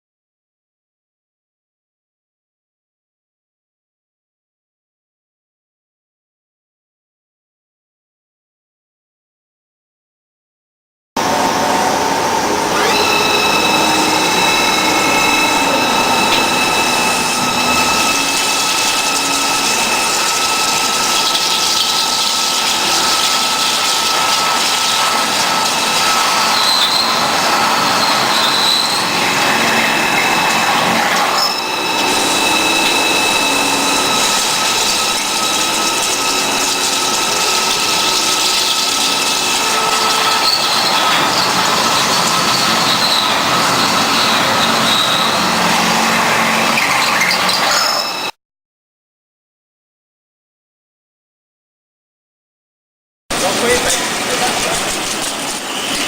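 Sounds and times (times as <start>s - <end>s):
machine cutting noise: 11.2s - 48.3s, 53.3s - 56.0s
spindle high whine: 11.2s - 48.3s.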